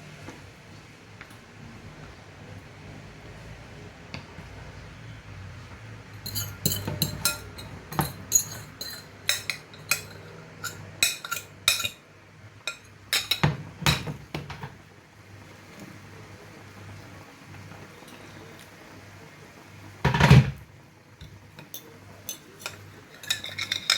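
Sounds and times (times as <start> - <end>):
utensil clinking against cooking pot: 6.2 - 12.0, 12.6 - 14.7, 21.2 - 23.9.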